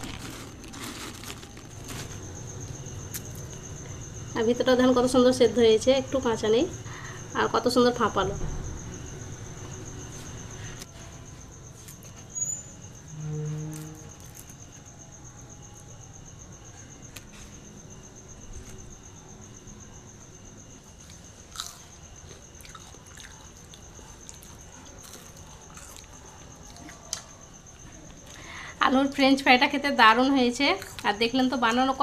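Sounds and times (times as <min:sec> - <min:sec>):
people chewing crisp fries: 0:21.0 - 0:28.6.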